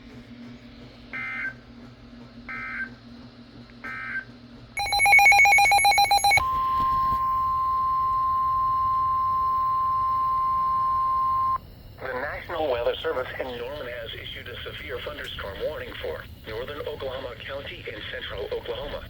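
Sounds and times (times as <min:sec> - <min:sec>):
steady warning alarm tone: 0:01.1 - 0:01.6, 0:02.5 - 0:03.0, 0:03.9 - 0:19.0
digital data chirps: 0:04.8 - 0:11.6.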